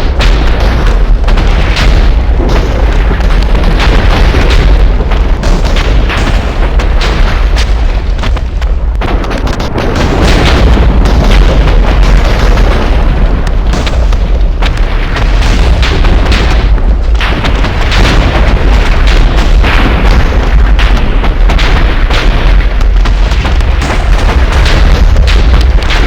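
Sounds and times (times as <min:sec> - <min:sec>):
deep storm rumble: 0:00.0 - 0:26.0
sharp crackles: 0:00.0 - 0:26.0.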